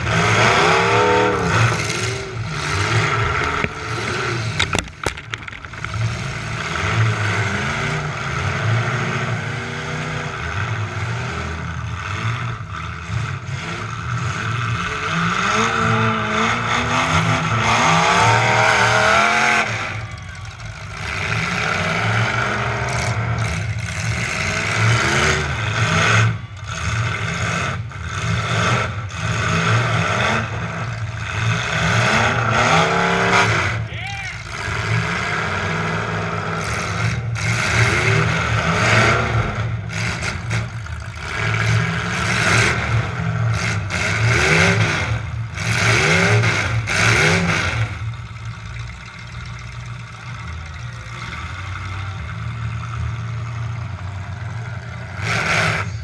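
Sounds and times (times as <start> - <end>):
truck engine revving: 0.0 - 56.0
trucks crashing bangs and clatter: 2.4 - 7.3.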